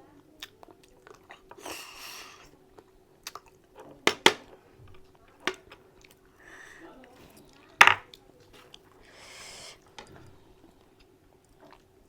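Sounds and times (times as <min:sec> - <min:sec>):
wet mouth clicks of chewing: 0:02.8 - 0:03.6.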